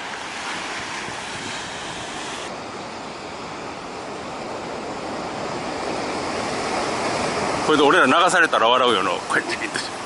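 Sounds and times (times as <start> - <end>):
surf breaking on beach: 0.0 - 2.6.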